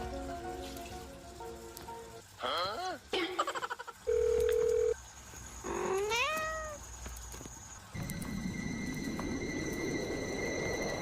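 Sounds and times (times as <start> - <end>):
cat meowing: 5.8 - 6.8.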